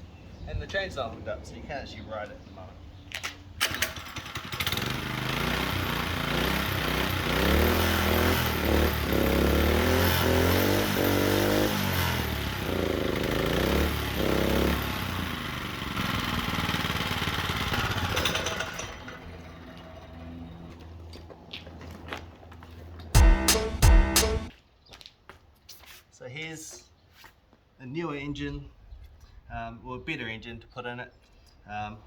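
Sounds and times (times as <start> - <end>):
minibike engine starter clicks: 3.6 - 4.8
small engine revving and idling: 3.6 - 20.8.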